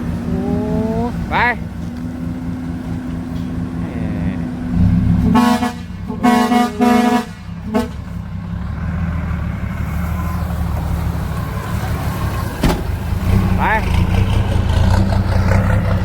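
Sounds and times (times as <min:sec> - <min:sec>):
diesel truck engine running: 0:00.0 - 0:16.0
truck horn toots: 0:05.2 - 0:08.2.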